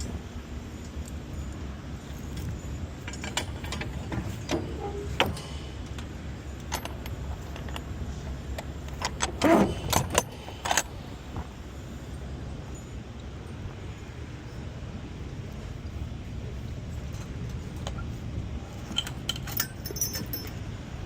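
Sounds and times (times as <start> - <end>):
truck engine rumbling: 0.0 - 21.0
sharp clinks: 18.9 - 20.7.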